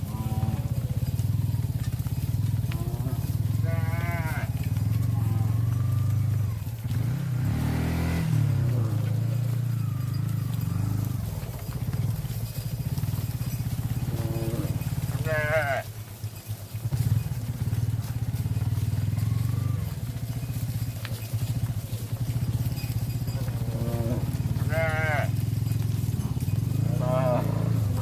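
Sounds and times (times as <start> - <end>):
animal bleating call: 0.0 - 1.0, 2.6 - 6.5, 14.1 - 15.9, 23.4 - 25.4, 26.8 - 28.0
small engine running: 0.0 - 28.0.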